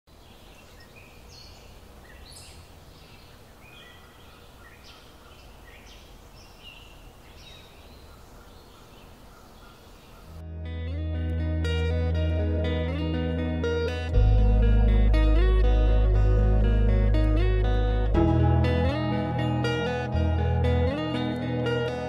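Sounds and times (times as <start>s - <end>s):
birds chirping and calling: 0.1s - 10.4s.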